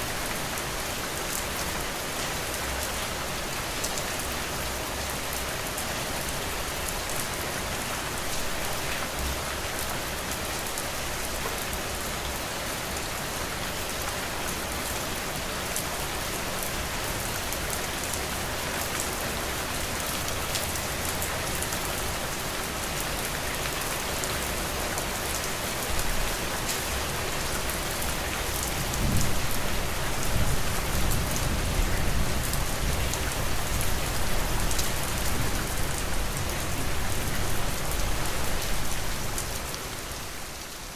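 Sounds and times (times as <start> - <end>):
rain pattering: 0.1 - 40.9.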